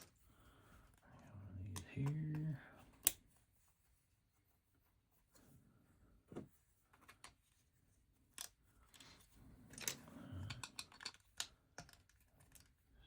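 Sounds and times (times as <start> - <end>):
soft rustling: 0.0 - 10.1
plastic bricks clicking: 9.7 - 12.7.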